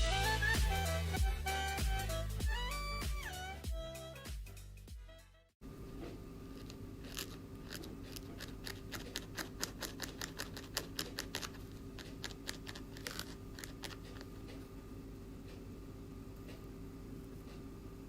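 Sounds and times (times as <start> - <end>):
scissors snipping: 6.6 - 14.6.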